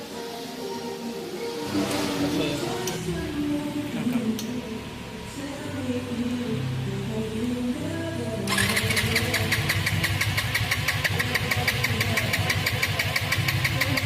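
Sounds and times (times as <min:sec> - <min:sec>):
motorcycle engine idling: 0:08.5 - 0:14.0.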